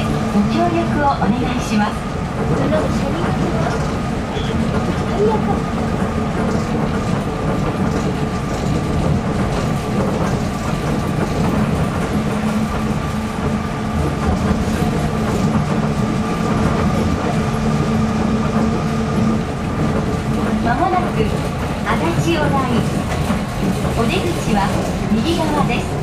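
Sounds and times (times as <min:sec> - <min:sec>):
train rumbling hum: 0:00.0 - 0:26.0.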